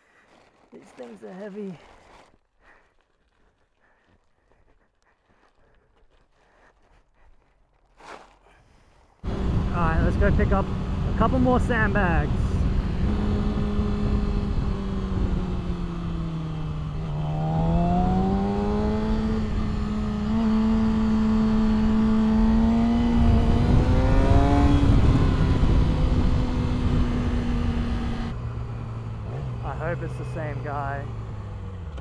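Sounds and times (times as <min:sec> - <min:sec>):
wind rumble: 0:09.2 - 0:29.6
motorcycle engine revving: 0:09.2 - 0:32.0.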